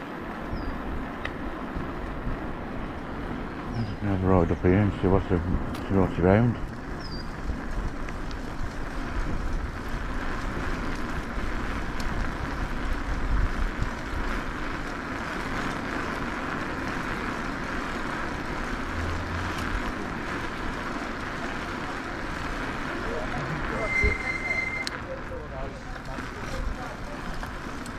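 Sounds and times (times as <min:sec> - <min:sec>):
wind rushing on microphone: 0:00.0 - 0:14.8.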